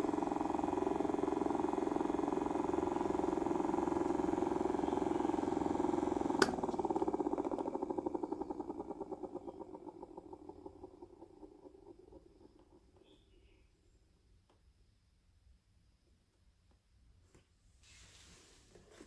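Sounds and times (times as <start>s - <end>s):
small motor buzzing hum: 0.0s - 13.5s.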